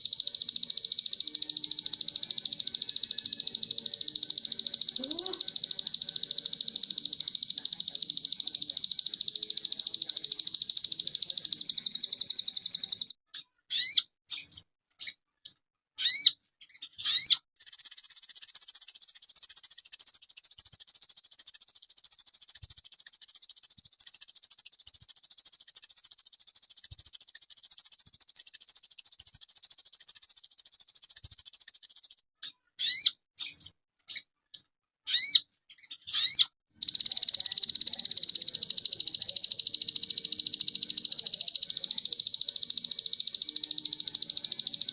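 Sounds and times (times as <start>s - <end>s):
songbird twittering trills: 0.0s - 13.2s, 17.1s - 32.2s, 36.1s - 44.9s
bird upward-sweeping chirps: 0.5s - 13.1s, 17.1s - 32.2s, 36.2s - 44.9s.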